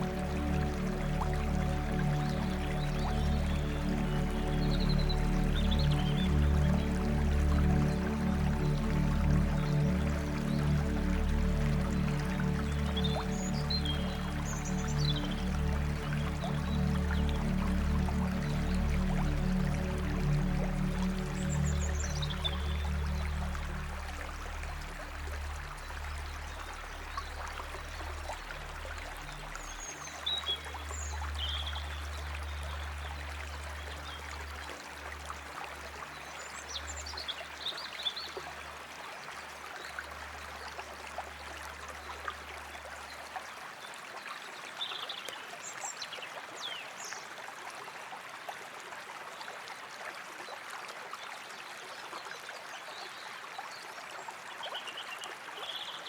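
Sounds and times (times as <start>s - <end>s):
low musical drone: 0.0s - 37.3s
water flowing: 0.0s - 56.0s.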